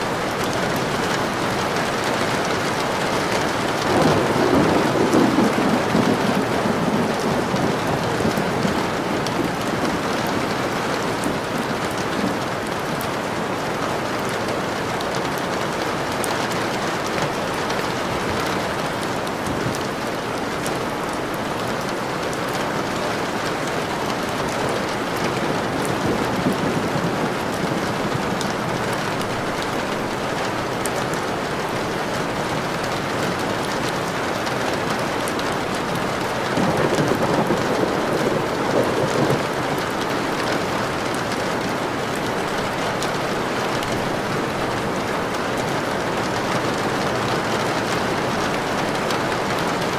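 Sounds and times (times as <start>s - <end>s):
low rumble of thunder: 0.0s - 11.5s, 24.5s - 30.2s, 35.6s - 40.7s
heavy rain falling: 0.0s - 49.9s.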